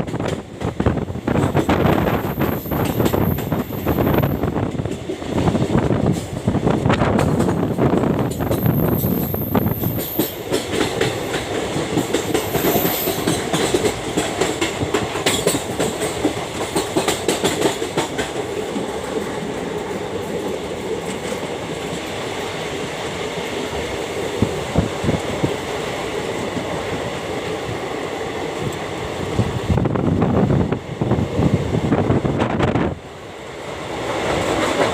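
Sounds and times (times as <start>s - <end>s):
train wheels clattering over rail joints: 0.0s - 19.7s.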